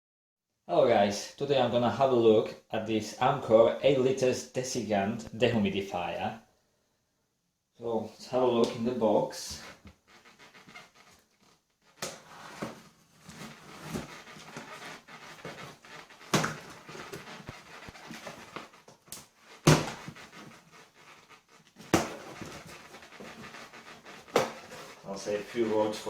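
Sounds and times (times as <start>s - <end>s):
cardboard rustling and scraping: 9.5s - 26.0s.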